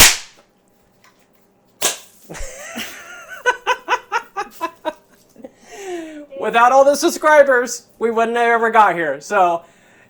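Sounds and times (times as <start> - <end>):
sharp crack: 0.0 - 0.4
person laughing: 2.3 - 5.6.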